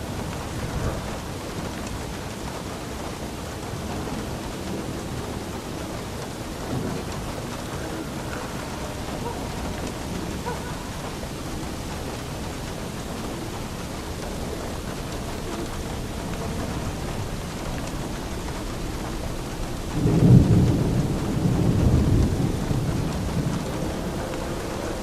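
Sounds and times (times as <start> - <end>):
heavy rain falling: 0.0 - 25.0
low rumble of thunder: 0.0 - 25.0.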